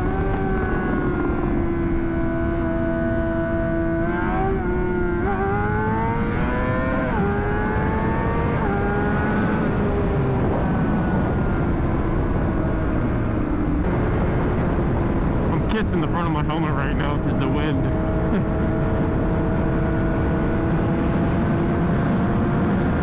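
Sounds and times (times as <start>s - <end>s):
motorcycle engine accelerating: 0.0s - 23.0s
wind rush over helmet: 9.7s - 15.8s.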